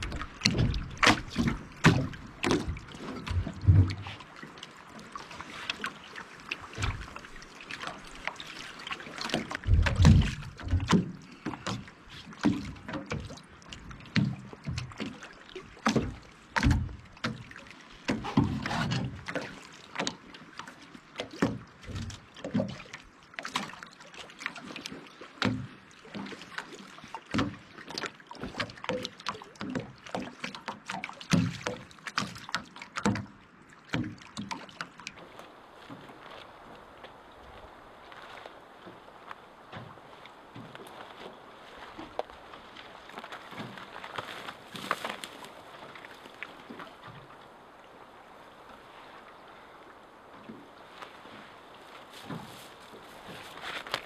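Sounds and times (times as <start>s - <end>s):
faint steady hiss: 35.2s - 54.0s.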